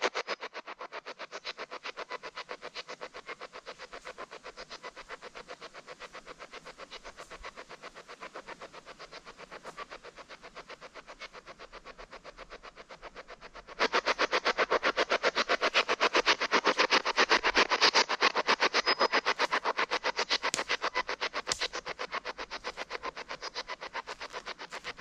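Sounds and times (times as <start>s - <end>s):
choppy radio static: 13.9s - 25.0s.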